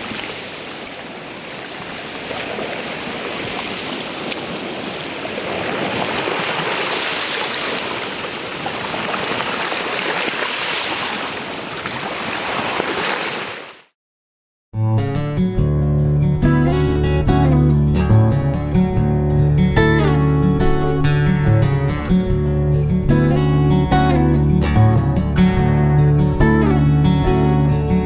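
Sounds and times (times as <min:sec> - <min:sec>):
rushing water: 0:00.0 - 0:13.9.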